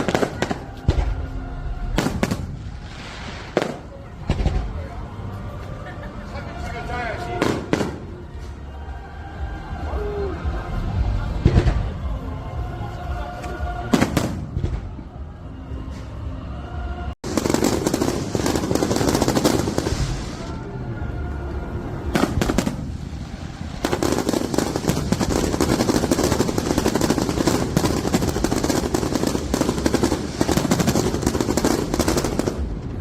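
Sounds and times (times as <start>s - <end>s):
fireworks crackling and popping: 0.0s - 1.3s, 1.9s - 5.0s, 7.3s - 8.5s, 17.2s - 20.7s, 22.0s - 33.0s.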